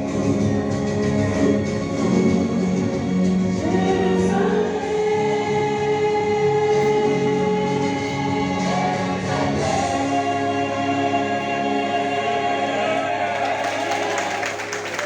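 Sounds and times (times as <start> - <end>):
choir singing a hymn: 0.0 - 14.8.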